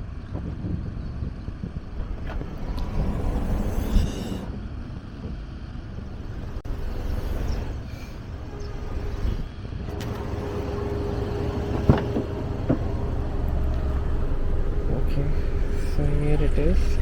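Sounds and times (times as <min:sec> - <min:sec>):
low outdoor rumble: 0:00.0 - 0:17.0
faint hum: 0:01.0 - 0:17.0.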